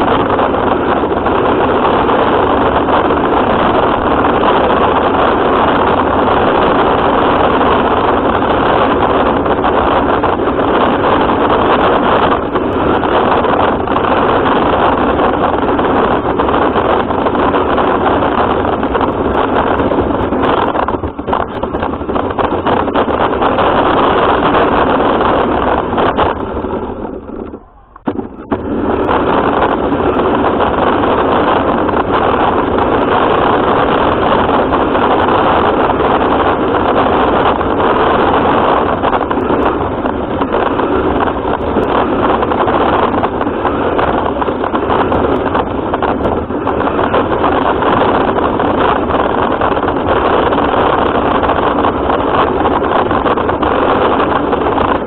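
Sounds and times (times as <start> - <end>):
rc car drive and wheels rumble: 0.0 - 55.0.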